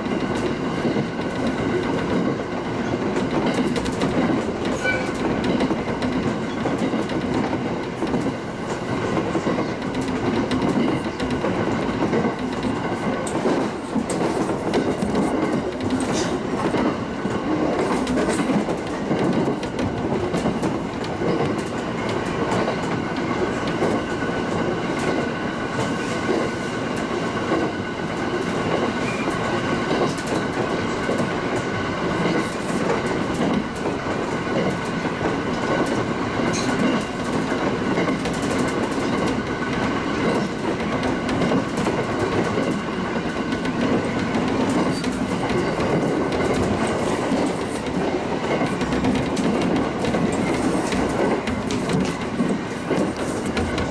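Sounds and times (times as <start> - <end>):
train rolling rumble: 0.0 - 53.9
wheels clicking over rail joints: 0.0 - 53.9.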